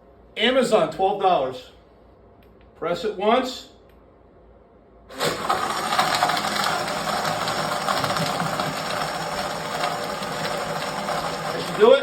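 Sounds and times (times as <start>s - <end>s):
electric blender crushing ice: 5.1s - 12.0s
ice chunks rattling in jar: 5.3s - 11.6s.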